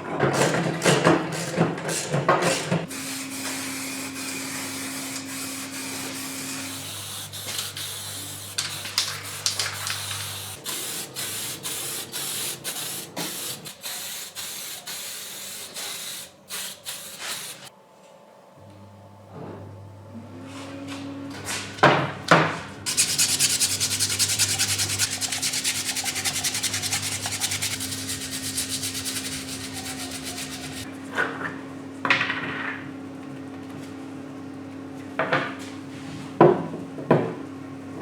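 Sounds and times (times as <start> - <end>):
paint spray hissing: 5.8 - 17.7, 22.9 - 30.9.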